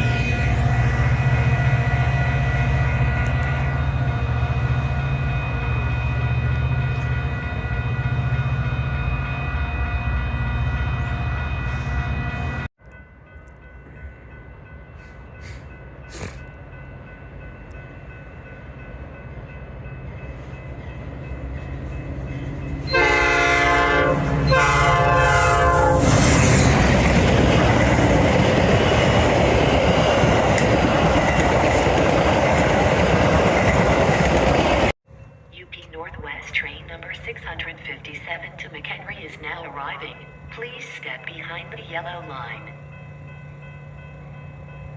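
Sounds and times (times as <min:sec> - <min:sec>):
locomotive humming: 0:00.0 - 0:12.7, 0:13.5 - 0:35.0
train horn blasts: 0:00.0 - 0:12.7, 0:22.8 - 0:26.7
train wheels rumbling on rail: 0:14.9 - 0:35.0.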